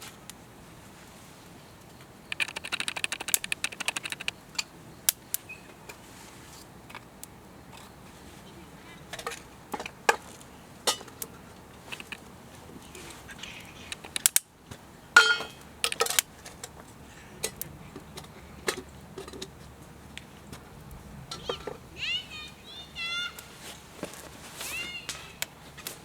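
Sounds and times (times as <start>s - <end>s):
wood fire crackling and popping: 1.8s - 8.2s, 9.0s - 21.9s.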